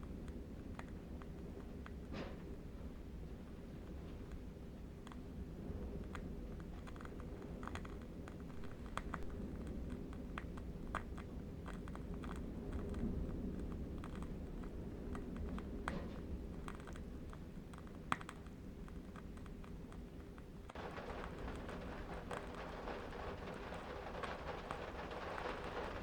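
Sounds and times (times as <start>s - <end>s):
candle wick crackling: 20.7s - 26.0s
distant wind rumble: 20.7s - 26.0s.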